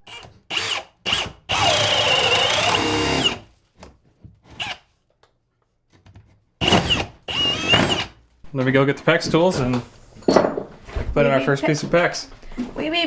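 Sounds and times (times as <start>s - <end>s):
power drill bursts: 0.1s - 3.5s, 6.6s - 8.2s.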